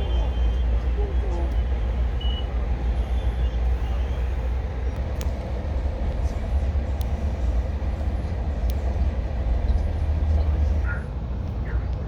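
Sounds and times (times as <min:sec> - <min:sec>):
train car rumbling on track: 0:00.0 - 0:12.0
faint sharp clicks: 0:05.0 - 0:06.2, 0:07.0 - 0:07.2, 0:08.6 - 0:09.1.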